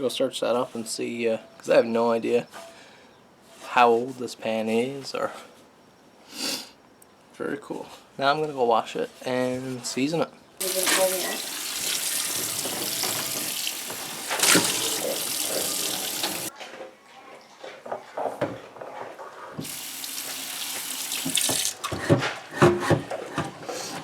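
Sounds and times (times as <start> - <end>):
water running from a tap: 10.6 - 16.5, 19.6 - 21.9.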